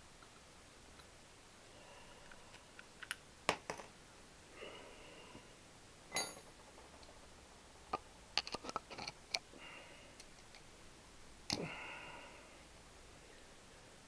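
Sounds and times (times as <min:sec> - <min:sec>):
metal tools clicking and clinking: 0:06.1 - 0:06.7.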